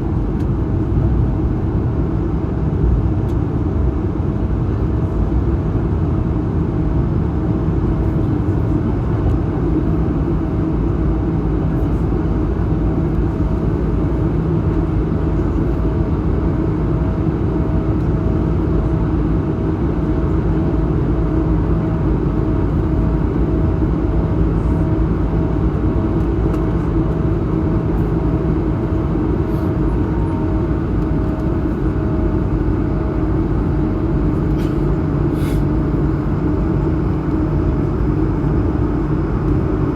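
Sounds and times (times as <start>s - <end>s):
jet engine rumble and airflow: 0.0s - 39.9s
mid-pitched throbbing hum: 19.8s - 39.9s.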